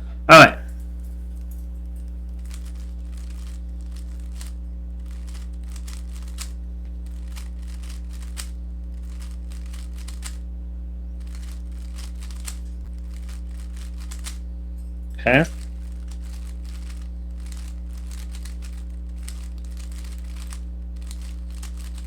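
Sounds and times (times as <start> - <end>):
low electrical hum: 0.0 - 22.0
plastic puzzle cube clicking: 2.4 - 10.4, 11.2 - 12.6, 13.2 - 14.4, 16.0 - 22.0.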